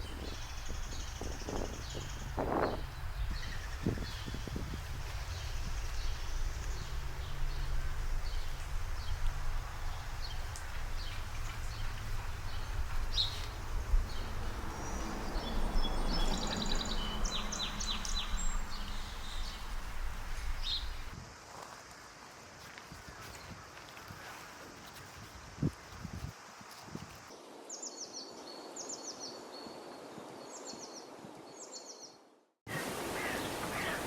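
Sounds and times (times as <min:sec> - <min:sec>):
low outdoor rumble: 0:00.0 - 0:21.2
small birds chirping: 0:00.0 - 0:21.2.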